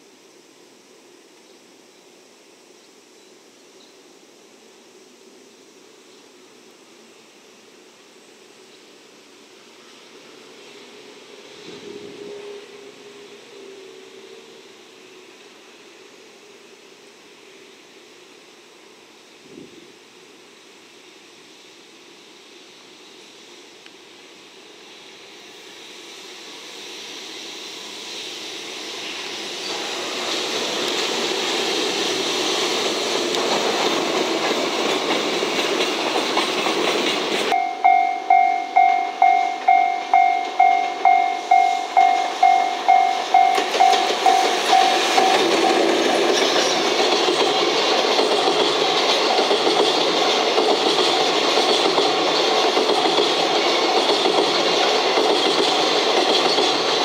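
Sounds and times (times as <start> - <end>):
electric locomotive passing: 0.0 - 57.0
level-crossing warning bell: 37.5 - 45.9.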